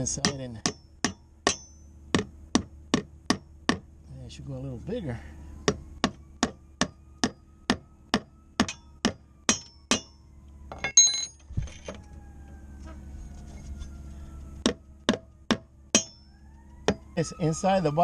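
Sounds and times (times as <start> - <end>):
hammer strikes: 0.0 - 3.9, 5.7 - 11.3, 14.6 - 16.3
ringing metallic clinks: 8.7 - 12.0.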